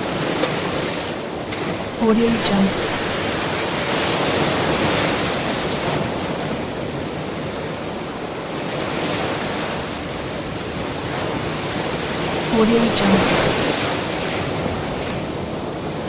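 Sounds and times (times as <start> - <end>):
ocean waves washing: 1.8 - 6.2.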